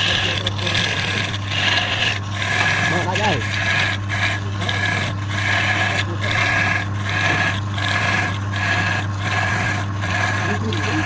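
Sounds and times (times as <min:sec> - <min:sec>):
lathe humming: 0:00.0 - 0:11.0
tool rasping on wood: 0:00.0 - 0:11.0.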